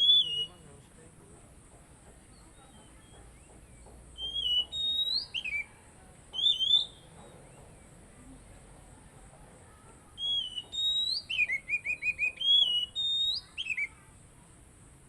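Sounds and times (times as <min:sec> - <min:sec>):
bird singing whistled phrases: 0:00.0 - 0:00.6, 0:04.2 - 0:05.7, 0:06.3 - 0:07.1, 0:10.2 - 0:14.0.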